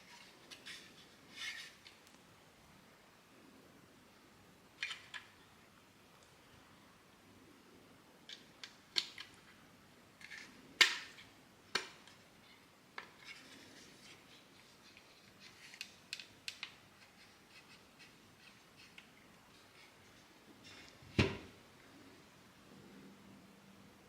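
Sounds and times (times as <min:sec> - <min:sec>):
plastic parts clicking and knocking: 0:08.3 - 0:09.4, 0:10.2 - 0:12.2.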